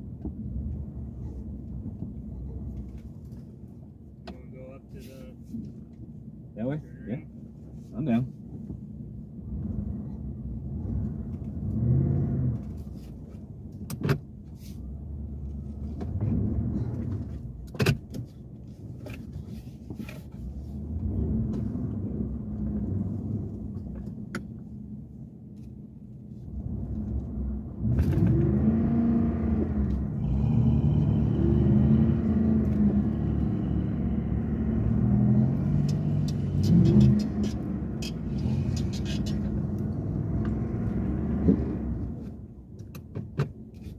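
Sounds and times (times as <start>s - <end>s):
off-road vehicle engine revving: 10.8s - 12.8s, 20.7s - 23.6s, 26.6s - 42.2s.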